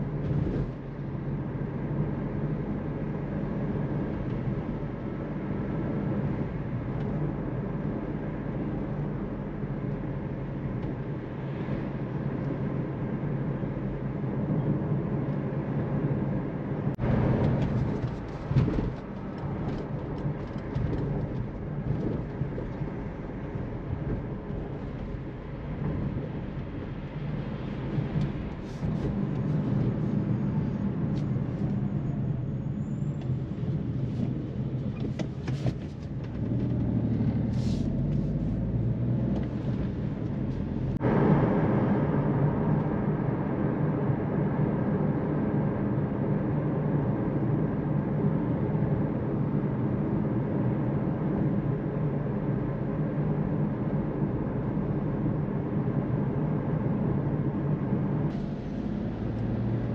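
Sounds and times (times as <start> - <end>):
road noise: 0.0 - 59.9
car engine running: 55.4 - 59.9.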